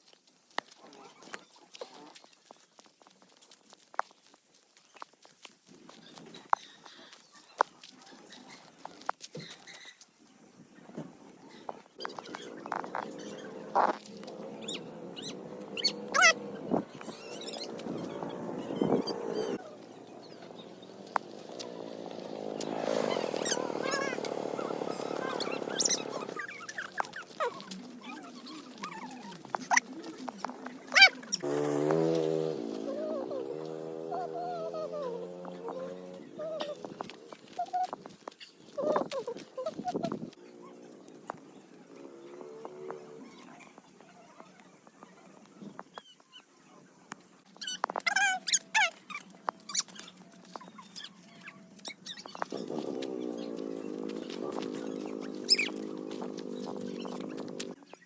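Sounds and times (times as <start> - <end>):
animal chirping and wavering calls: 11.5 - 46.4, 47.6 - 57.8
dog yelping: 12.0 - 20.6, 21.3 - 29.8, 30.9 - 38.0, 50.8 - 57.8.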